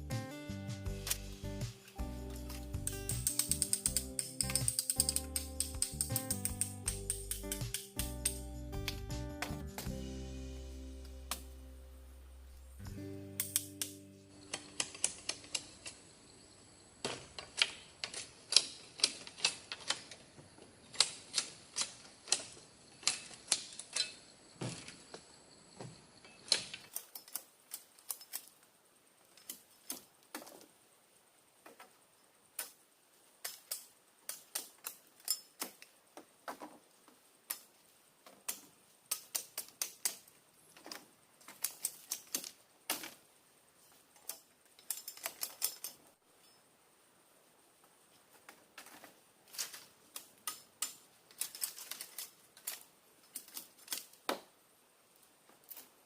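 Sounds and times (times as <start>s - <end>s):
sharp irregular clicks and knocks: 1.8s - 9.9s, 13.4s - 16.0s, 17.0s - 25.0s, 26.2s - 30.7s, 31.6s - 32.0s, 32.6s - 32.8s, 33.4s - 43.2s, 44.2s - 46.1s, 48.3s - 54.5s.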